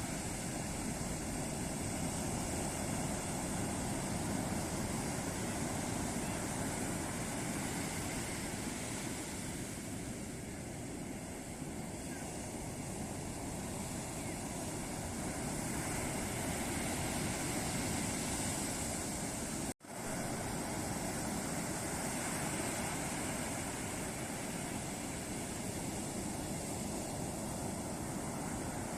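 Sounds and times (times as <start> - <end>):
ocean surf washing onto beach: 0.0 - 28.9.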